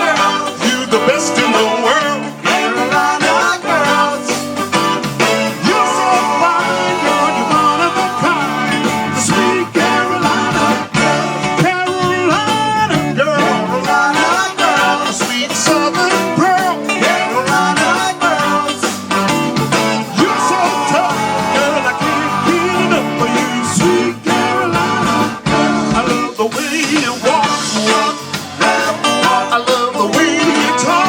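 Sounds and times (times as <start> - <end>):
live band playing: 0.0 - 31.0
person singing: 0.0 - 31.0.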